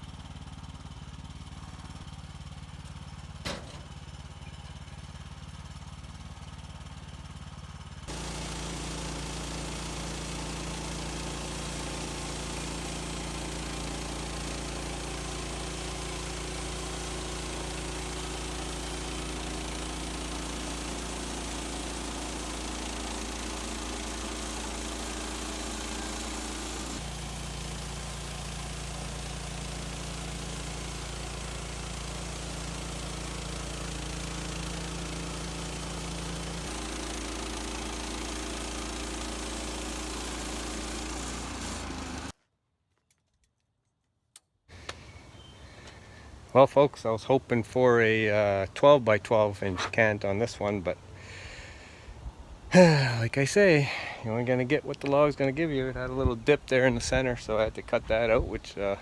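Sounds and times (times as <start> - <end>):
gas engine running: 0.0 - 42.4, 47.4 - 59.0
band blade sawing log: 8.1 - 42.3, 49.6 - 50.3, 52.8 - 56.2.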